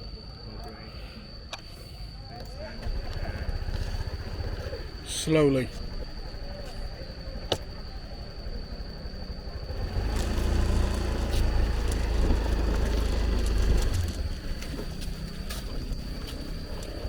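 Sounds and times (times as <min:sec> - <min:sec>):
motor scooter engine running: 0:02.8 - 0:07.0, 0:09.4 - 0:17.0.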